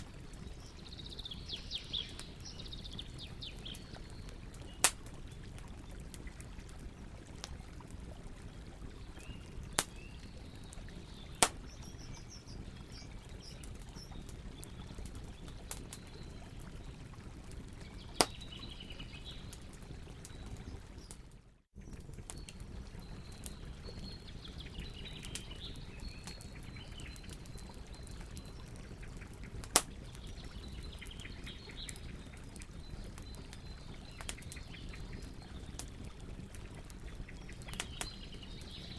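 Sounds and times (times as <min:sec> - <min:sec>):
small birds chirping: 0:00.0 - 0:07.2, 0:08.2 - 0:38.9
campfire crackling: 0:00.0 - 0:38.9
sharp pops of fire: 0:04.8 - 0:05.2, 0:09.7 - 0:10.0, 0:11.4 - 0:11.8, 0:29.6 - 0:30.0.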